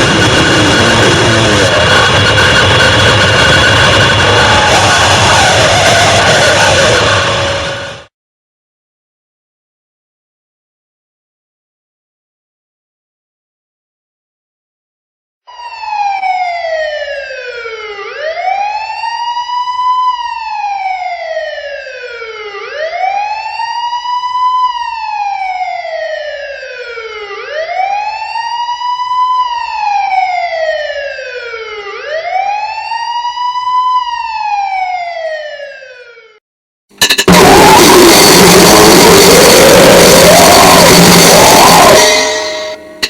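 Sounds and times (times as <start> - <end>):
harsh noise music: 0.0 - 8.1, 36.9 - 43.0
wailing siren: 0.0 - 8.1, 15.5 - 36.4, 37.2 - 43.0.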